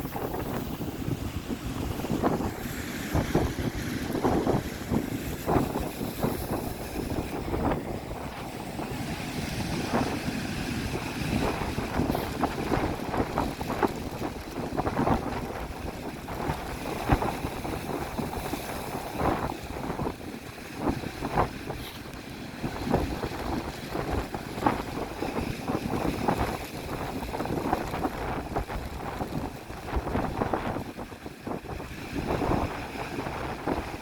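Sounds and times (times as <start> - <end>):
sea waves breaking: 0.0 - 34.0
wind buffeting microphone: 0.0 - 34.0.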